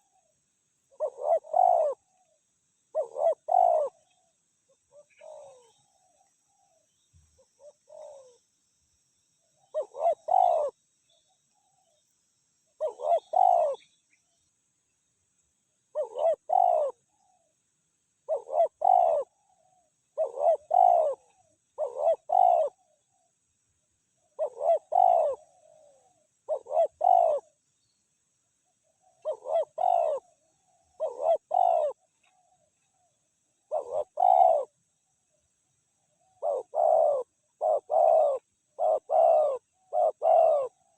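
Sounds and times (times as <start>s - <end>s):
dove cooing: 0.0s - 6.8s, 7.4s - 8.4s, 9.6s - 10.8s, 12.8s - 14.0s, 15.9s - 17.5s, 18.2s - 23.3s, 24.2s - 27.6s, 28.8s - 34.8s, 36.1s - 40.9s.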